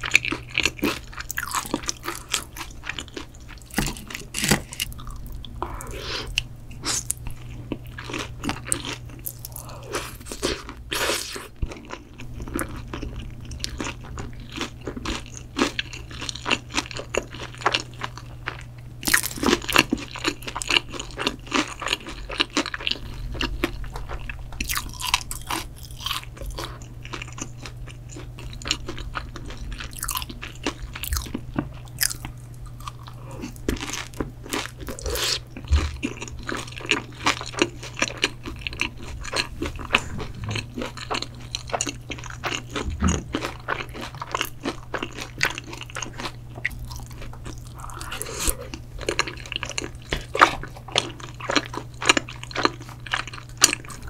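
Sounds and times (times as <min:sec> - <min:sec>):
person chewing crunchy food: 0:00.0 - 0:54.0
steady low hum: 0:00.0 - 0:54.0
wet mouth sounds: 0:39.1 - 0:43.5.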